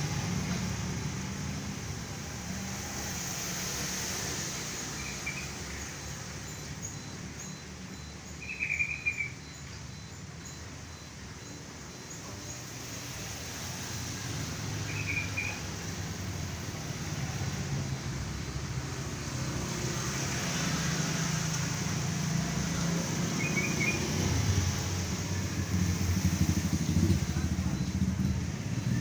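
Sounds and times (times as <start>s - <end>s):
vehicle engine running: 10.4s - 29.0s.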